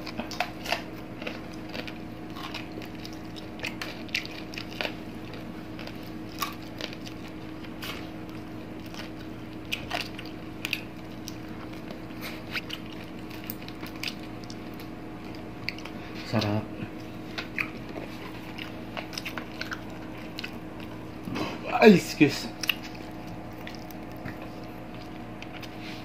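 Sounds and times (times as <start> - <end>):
crunching fried fish: 0.0 - 21.2, 21.9 - 25.9
steady low hum: 0.0 - 26.0
lip smacks and mouth clicks: 8.8 - 21.0, 22.6 - 25.8.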